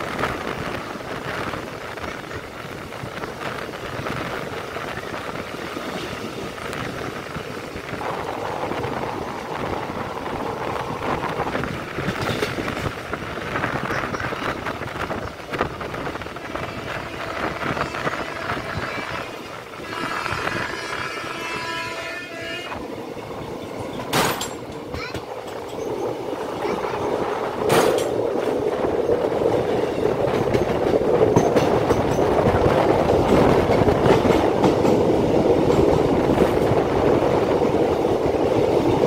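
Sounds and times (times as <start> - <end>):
wind rushing: 0.0 - 22.0, 24.8 - 39.0
train wheels on rail: 0.0 - 39.0.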